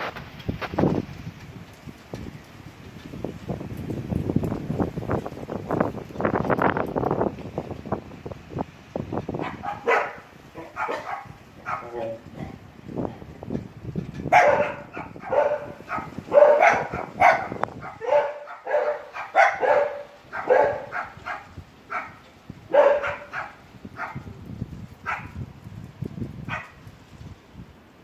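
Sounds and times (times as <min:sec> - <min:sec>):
low wind noise: 0:00.0 - 0:28.0
dog barking: 0:09.4 - 0:12.2, 0:14.3 - 0:24.3, 0:25.0 - 0:25.4, 0:26.5 - 0:26.8.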